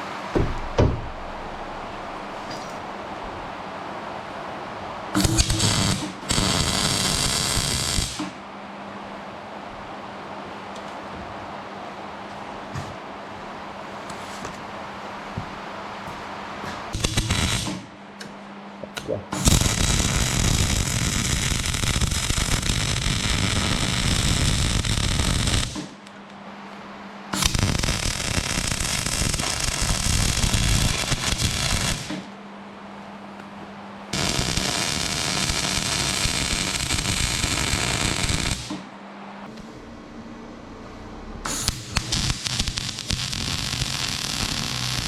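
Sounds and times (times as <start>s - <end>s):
arc welding sizzle: 5.2s - 8.4s, 16.8s - 17.9s, 19.4s - 26.0s, 27.4s - 32.3s, 34.1s - 38.9s, 41.5s - 45.0s.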